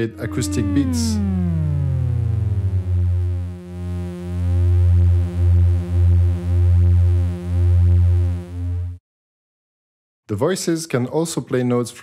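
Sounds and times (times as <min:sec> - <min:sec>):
synthesizer drone: 0:00.0 - 0:07.7.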